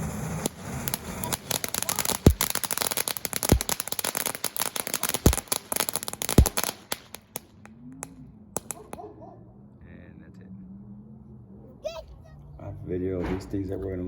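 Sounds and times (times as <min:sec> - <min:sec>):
firework bangs: 0:00.0 - 0:09.0
firework crackling: 0:00.0 - 0:09.0.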